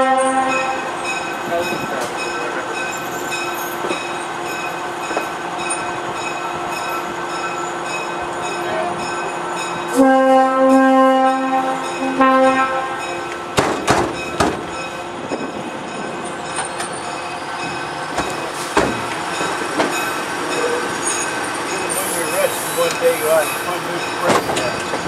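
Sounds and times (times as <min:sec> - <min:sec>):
locomotive horn blasts: 0:00.0 - 0:00.9, 0:09.9 - 0:13.4
passenger car rumbling on track: 0:13.3 - 0:25.0
sharp knocks: 0:13.6 - 0:14.7.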